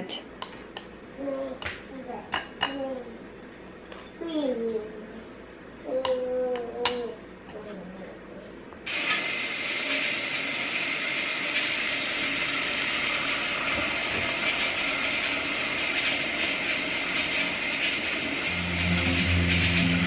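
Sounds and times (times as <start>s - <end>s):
music: 18.5s - 20.0s.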